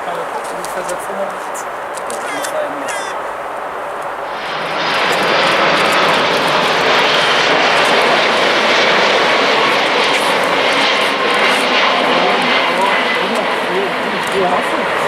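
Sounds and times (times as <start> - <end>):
jet airliner passing: 0.0 - 15.0.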